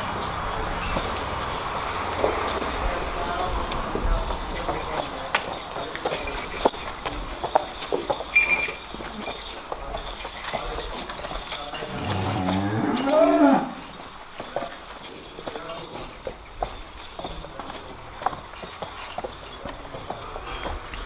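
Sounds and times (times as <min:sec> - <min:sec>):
cow mooing: 0:11.9 - 0:13.9.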